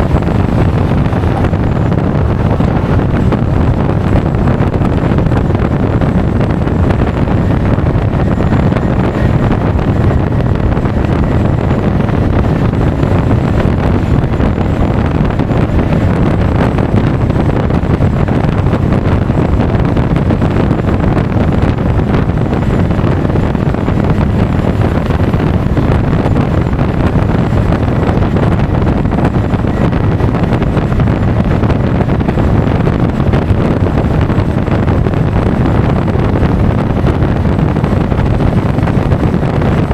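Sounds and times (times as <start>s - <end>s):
scooter engine running: 0.0s - 5.2s
road noise: 0.0s - 39.9s
wind rush on microphone: 0.0s - 39.9s.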